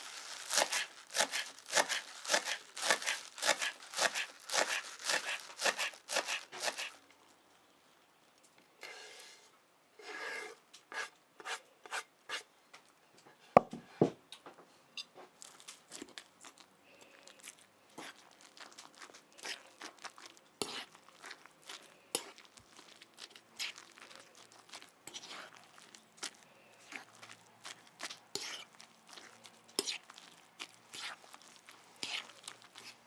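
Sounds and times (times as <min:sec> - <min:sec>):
batter rustling and scraping: 0:00.0 - 0:07.7, 0:15.4 - 0:33.0.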